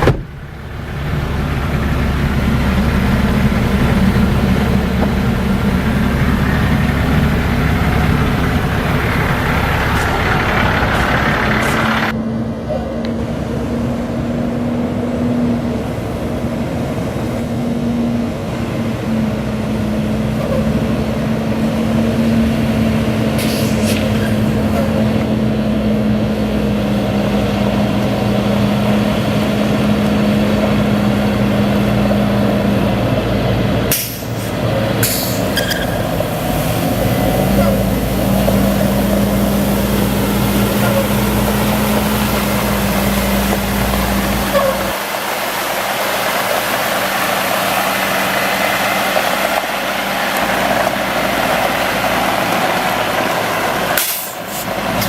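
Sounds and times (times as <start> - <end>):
loud rushing noise: 0.0 - 12.2
steady engine whine: 0.0 - 55.0
truck diesel engine running: 0.0 - 55.0.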